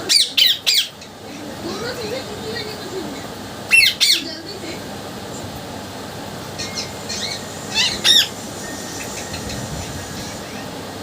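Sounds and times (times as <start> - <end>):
parrot chirps: 3.7 - 4.3, 6.5 - 10.7
parrot whistle-squawks: 6.6 - 10.7.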